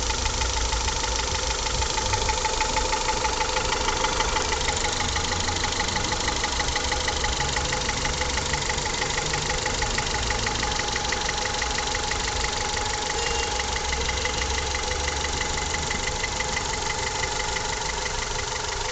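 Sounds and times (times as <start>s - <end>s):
car engine idling: 0.0s - 18.9s
rapid knocking in engine: 0.0s - 18.9s.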